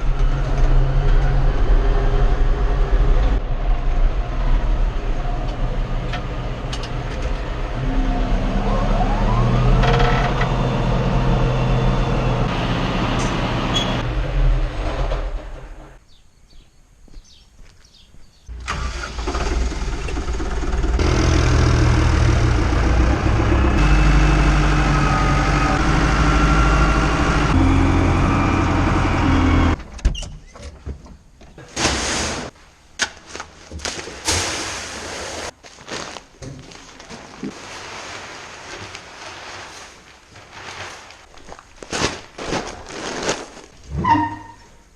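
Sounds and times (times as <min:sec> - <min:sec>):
tractor engine running: 0:18.5 - 0:30.0.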